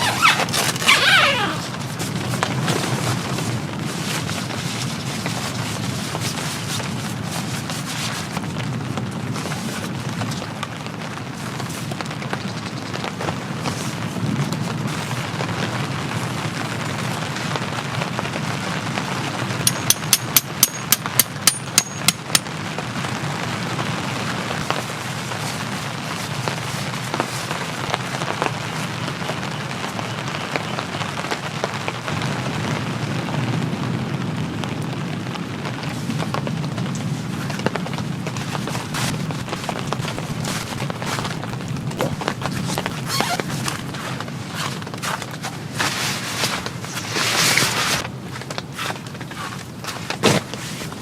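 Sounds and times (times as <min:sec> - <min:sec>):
steady rain falling: 0:01.7 - 0:19.6, 0:22.5 - 0:42.5
sharp ringing clicks: 0:19.7 - 0:22.4.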